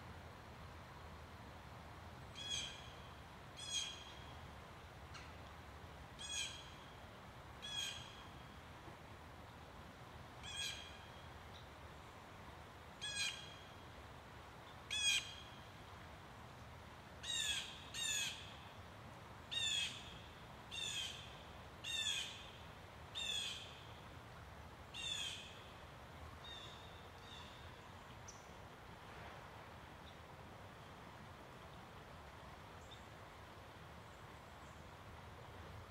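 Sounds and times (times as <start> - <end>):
bird calling: 2.4 - 3.0, 7.6 - 8.2, 17.2 - 18.5.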